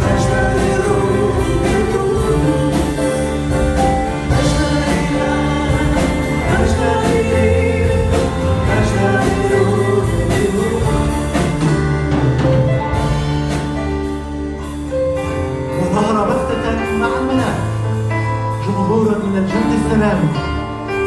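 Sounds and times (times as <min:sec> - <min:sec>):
group singing a hymn: 0:00.0 - 0:11.2
steady percussion beat: 0:00.0 - 0:15.8
instrumental accompaniment: 0:00.0 - 0:21.0.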